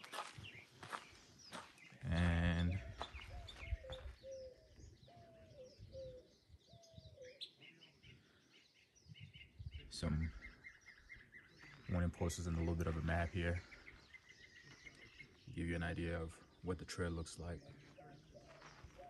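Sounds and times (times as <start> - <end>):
faint high bird chirps: 0.0 - 15.6.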